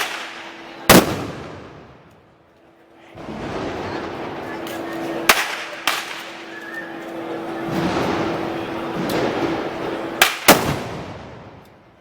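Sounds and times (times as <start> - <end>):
sharp gun blasts: 0.0 - 2.0, 10.2 - 11.6
crowd noise: 0.0 - 12.0.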